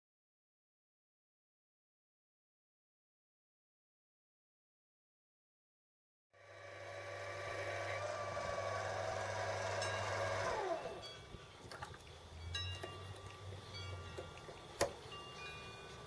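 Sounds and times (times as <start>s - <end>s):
metal lathe winding down: 6.4s - 11.3s
metallic clinks and ringing: 11.0s - 16.0s.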